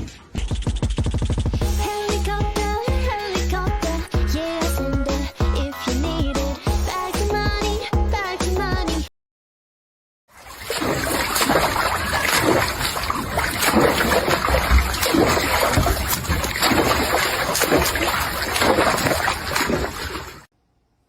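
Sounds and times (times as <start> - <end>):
water splashing and sloshing: 10.3 - 20.5.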